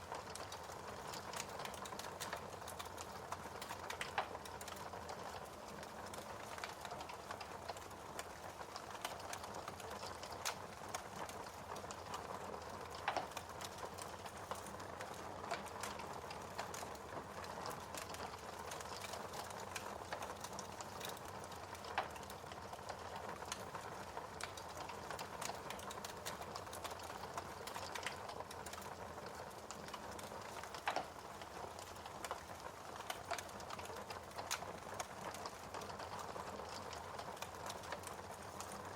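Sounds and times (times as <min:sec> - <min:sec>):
fire crackling in fireplace: 0:00.0 - 0:38.9
loud fire snaps: 0:00.1 - 0:38.8.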